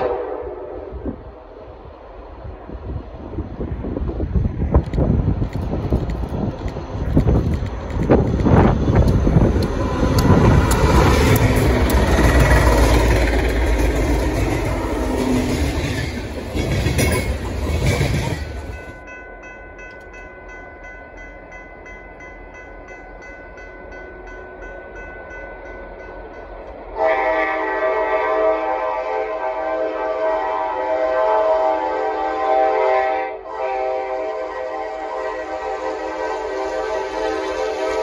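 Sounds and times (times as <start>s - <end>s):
train wheel noise: 0.0s - 32.4s, 33.6s - 38.0s
diesel locomotives rumbling: 0.0s - 38.0s
crossing warning bell ringing: 9.3s - 27.2s.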